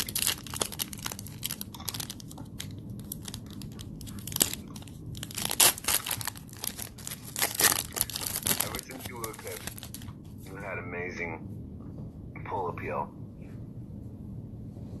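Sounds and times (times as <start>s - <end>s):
plastic wrapper crinkling and tearing: 0.0s - 10.1s.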